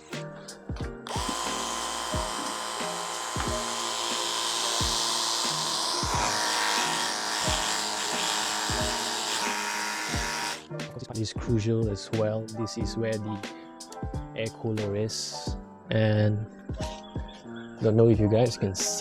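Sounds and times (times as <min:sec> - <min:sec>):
background music with beat: 0:00.0 - 0:15.7, 0:16.6 - 0:19.0
pressure washer motor whine: 0:01.0 - 0:10.7.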